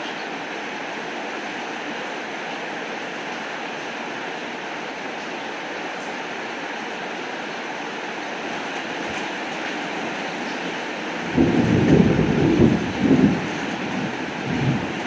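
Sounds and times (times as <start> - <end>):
rain falling: 8.0 - 15.0.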